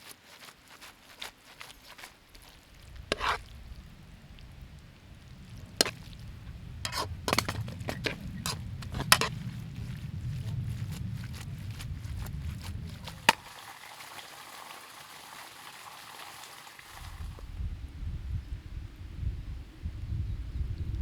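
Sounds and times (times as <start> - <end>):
utensils clinking against cookware: 3.1 - 3.4, 6.9 - 9.4.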